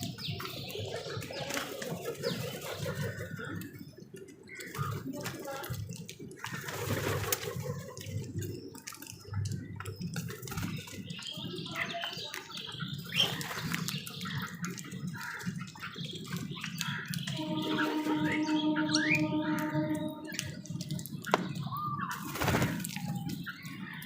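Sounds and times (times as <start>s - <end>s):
crows calling: 14.3s - 16.1s, 16.7s - 21.3s
held tone with overtones: 17.4s - 21.2s.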